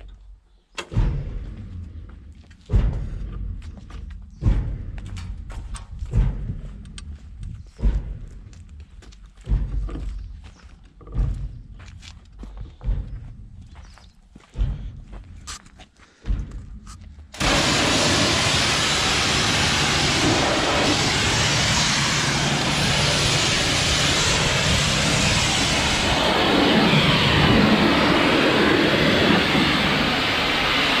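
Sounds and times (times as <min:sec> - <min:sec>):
tractor engine running: 0:16.2 - 0:31.0.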